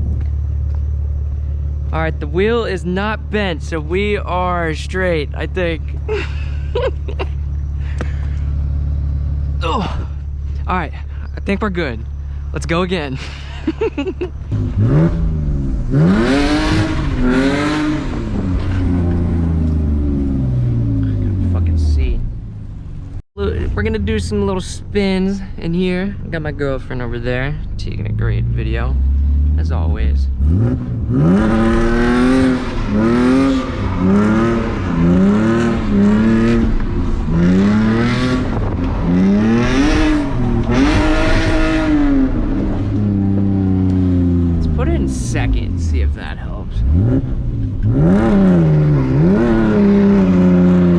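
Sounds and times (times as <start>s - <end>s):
car engine revving hard: 14.5s - 22.2s, 28.1s - 50.9s.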